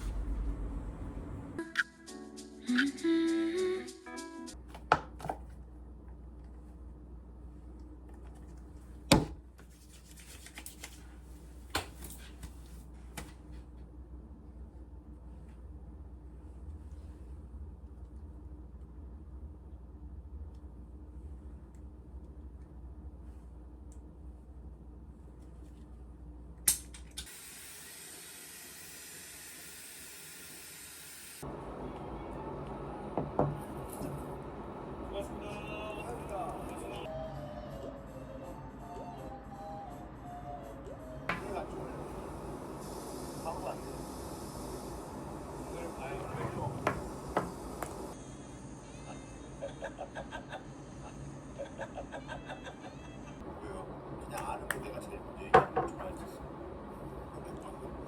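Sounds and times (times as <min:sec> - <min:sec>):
dull rushing noise: 0:00.0 - 0:01.6, 0:31.4 - 0:37.1, 0:41.3 - 0:48.2
steady low hum: 0:00.0 - 0:01.6, 0:31.4 - 0:37.1, 0:41.1 - 0:52.2, 0:53.3 - 0:58.0
steady hiss: 0:41.3 - 0:48.2.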